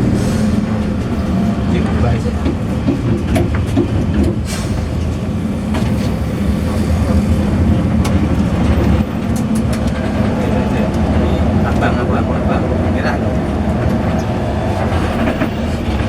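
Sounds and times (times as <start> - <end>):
bus engine rumbling: 0.0 - 16.0.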